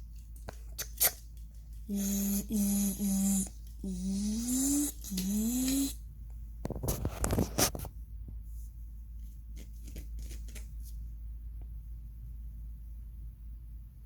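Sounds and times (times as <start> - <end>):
person humming sound effects: 1.9 - 6.0.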